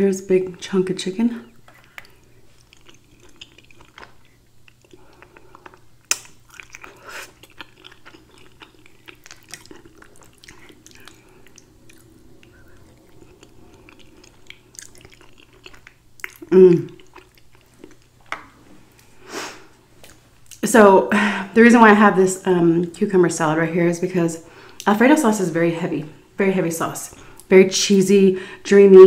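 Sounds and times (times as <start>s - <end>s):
wet chewing: 1.5s - 19.1s.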